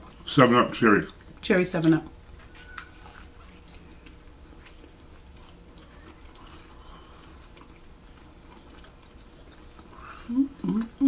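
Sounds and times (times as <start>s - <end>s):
people chewing: 0.0s - 11.0s.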